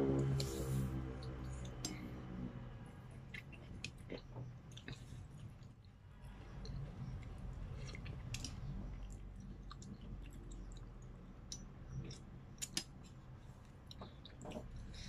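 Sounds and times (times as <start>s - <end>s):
low steady hum: 0.0s - 15.0s
person chewing: 3.1s - 15.0s.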